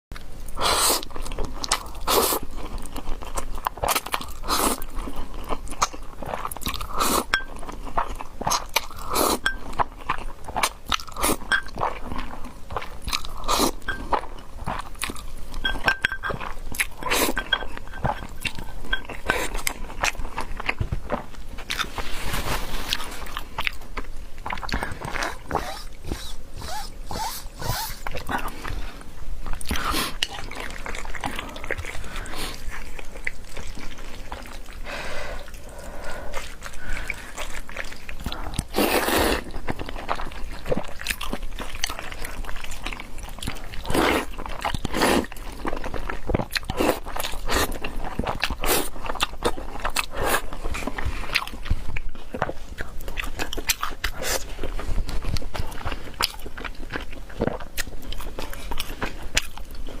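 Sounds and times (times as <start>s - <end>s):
person chewing crunchy food: 0.2s - 60.0s.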